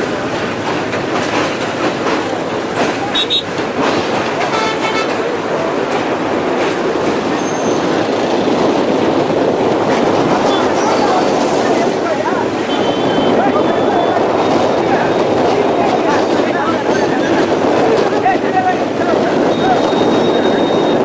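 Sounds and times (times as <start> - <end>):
train rumbling on bridge: 0.0 - 21.0
wind rushing: 3.6 - 21.0
brief tones: 19.5 - 21.0.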